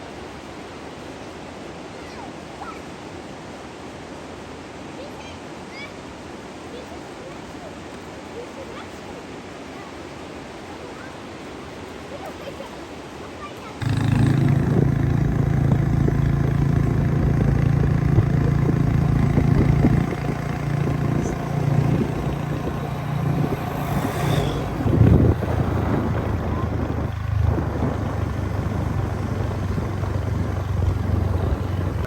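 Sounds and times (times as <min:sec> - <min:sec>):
road noise: 0:13.8 - 0:32.0
vehicle engine running: 0:13.8 - 0:32.0.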